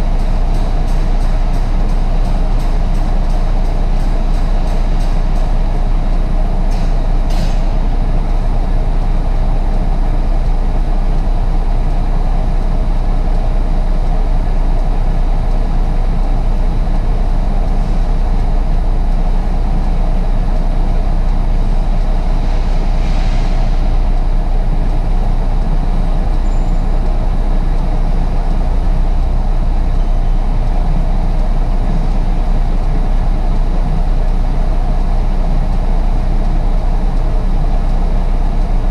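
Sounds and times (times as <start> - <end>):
truck engine rumbling: 0.0 - 38.9.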